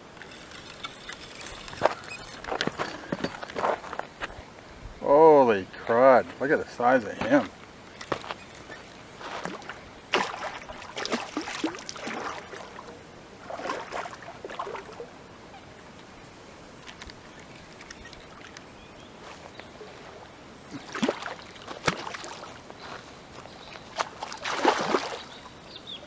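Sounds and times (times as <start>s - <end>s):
water splashing from thrashing fish: 9.3s - 12.9s, 24.0s - 25.3s.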